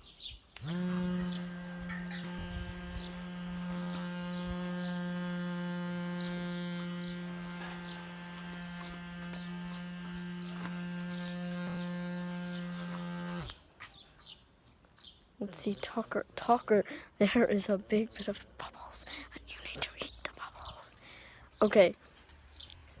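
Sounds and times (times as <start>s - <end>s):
small electric motor humming: 0.6s - 13.7s.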